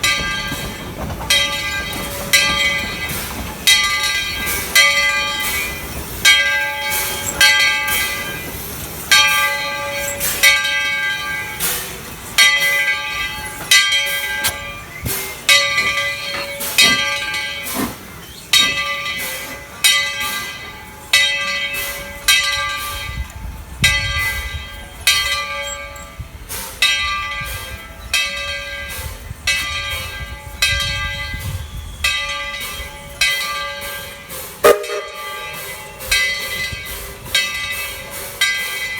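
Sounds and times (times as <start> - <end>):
locomotive bell ringing: 0.0 - 38.9.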